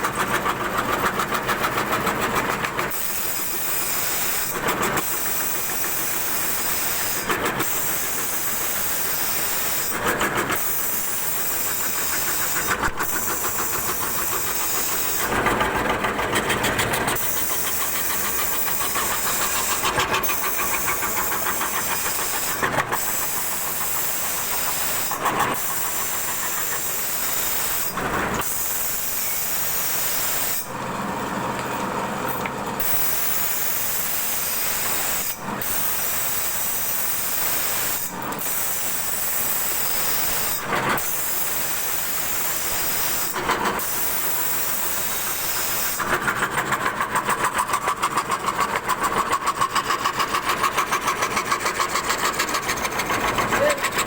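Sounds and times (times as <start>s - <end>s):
router cutting wood: 0.0s - 30.8s, 32.3s - 46.6s.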